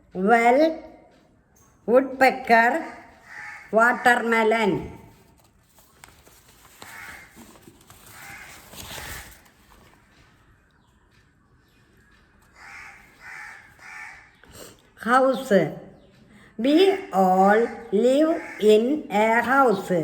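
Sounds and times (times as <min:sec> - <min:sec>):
bird calling: 0:11.7 - 0:14.6.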